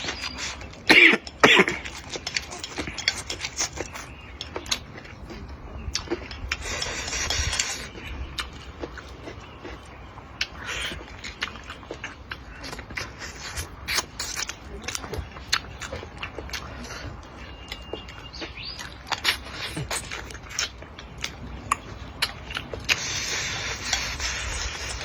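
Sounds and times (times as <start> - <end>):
chewing with mouth clicks: 0.0 - 25.0.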